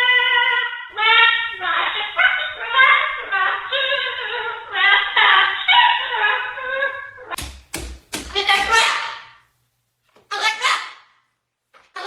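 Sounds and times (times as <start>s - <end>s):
cockatoo singing: 0.0s - 7.4s, 8.2s - 9.4s
sharp knocks: 7.4s - 8.9s.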